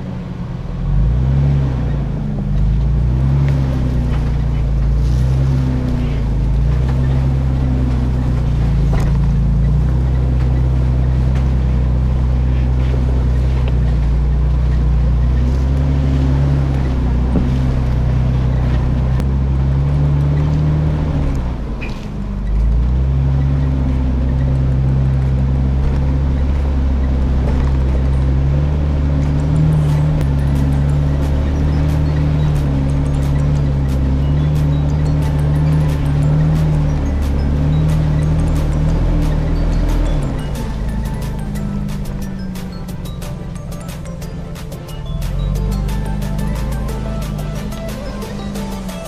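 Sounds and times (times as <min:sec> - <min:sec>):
car engine off road driving: 0:00.0 - 0:49.0.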